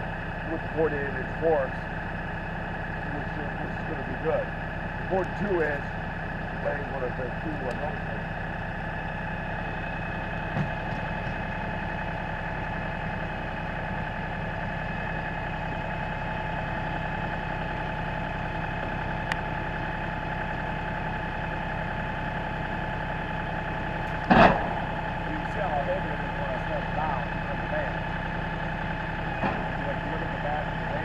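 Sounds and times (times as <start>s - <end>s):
tractor diesel engine idling: 0.0s - 31.0s
loud clunk: 24.2s - 24.8s.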